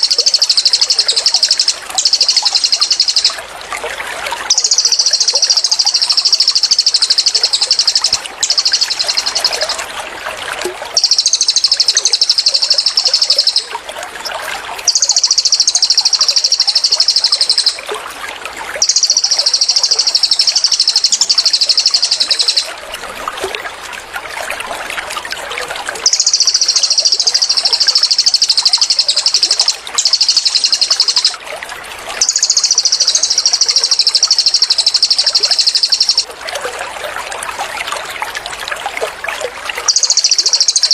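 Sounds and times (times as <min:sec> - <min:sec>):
bird rapid rattling calls: 0:00.0 - 0:03.4, 0:04.5 - 0:09.8, 0:11.0 - 0:13.7, 0:14.9 - 0:17.8, 0:18.8 - 0:22.7, 0:26.0 - 0:31.4, 0:32.2 - 0:36.2, 0:39.8 - 0:40.9
running water trickling: 0:00.0 - 0:40.9.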